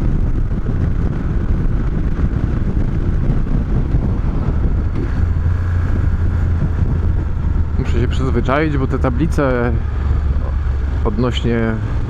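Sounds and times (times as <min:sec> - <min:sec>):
motorcycle engine running: 0:00.0 - 0:12.0
wind rush on microphone: 0:00.0 - 0:12.0.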